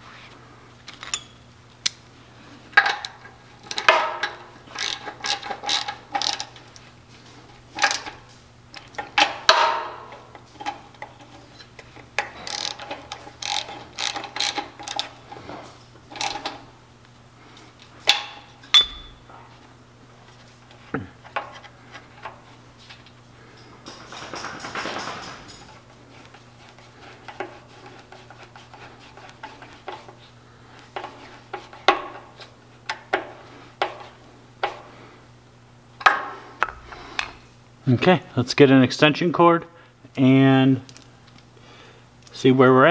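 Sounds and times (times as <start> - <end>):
faint steady hum: 0.0 - 42.9
tools and metal parts clinking: 0.9 - 1.4, 2.8 - 6.6, 7.7 - 9.8, 12.2 - 16.6, 23.4 - 25.9.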